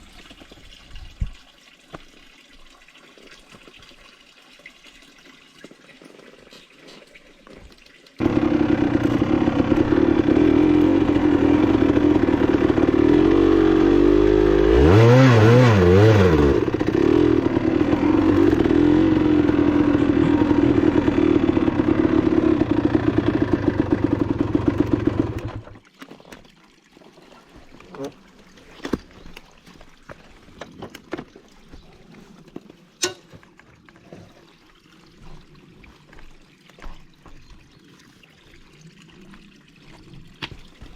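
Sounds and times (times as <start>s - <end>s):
motorcycle engine running: 8.2s - 25.8s
motorcycle throttle blips: 8.2s - 25.8s.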